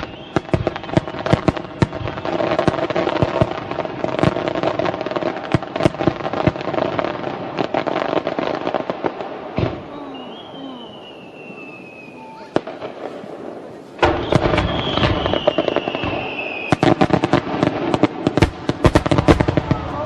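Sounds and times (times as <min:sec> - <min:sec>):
high whistle sliding down: 0:00.0 - 0:00.6, 0:10.1 - 0:12.5, 0:14.1 - 0:16.8
fireworks bangs and crackling: 0:00.0 - 0:20.0.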